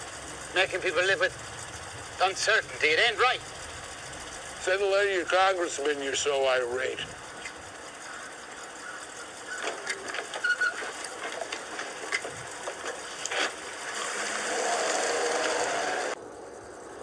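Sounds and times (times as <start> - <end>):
scattered clicks: 0.0 - 8.0, 8.7 - 14.4
vintage car engine clattering: 9.2 - 14.0.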